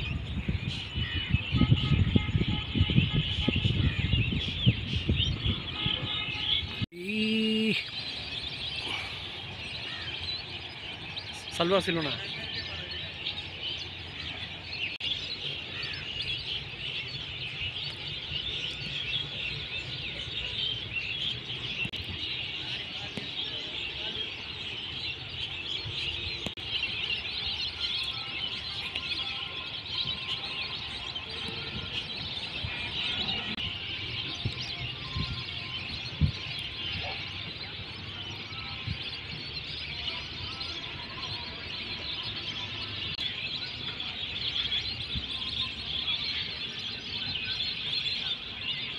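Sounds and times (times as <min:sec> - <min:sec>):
flock of waterbirds calling: 0:00.0 - 0:48.9.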